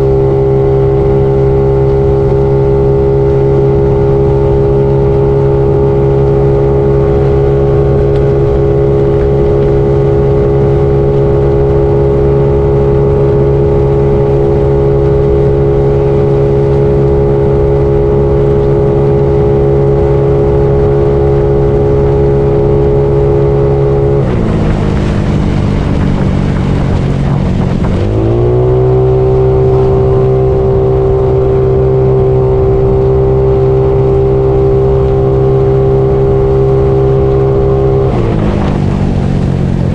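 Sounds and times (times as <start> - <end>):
scooter engine running: 0.0 - 39.9
rushing noise: 3.8 - 32.8, 37.6 - 39.9.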